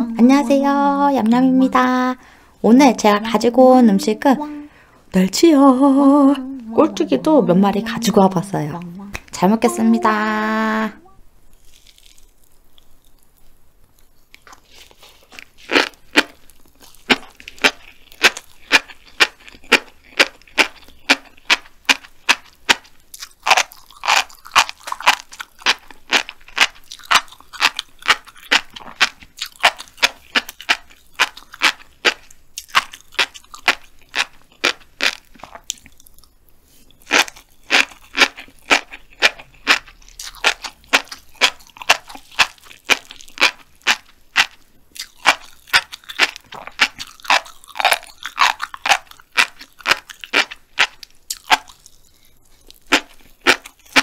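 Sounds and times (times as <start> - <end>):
crunchy chewing of fish roe: 11.4 - 54.0.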